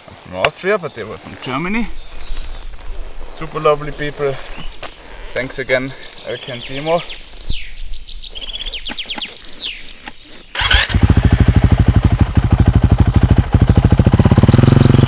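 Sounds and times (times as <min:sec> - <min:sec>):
birds chirping: 0:00.0 - 0:15.0
motorcycle engine starting and idling: 0:10.0 - 0:15.0.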